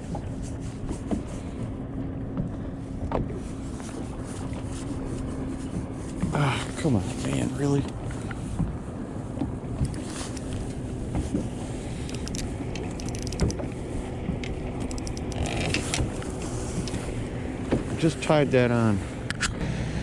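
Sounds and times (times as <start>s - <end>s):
boat motor hum: 0.0s - 20.0s
light clicks and knocks: 9.8s - 13.8s, 14.4s - 17.0s.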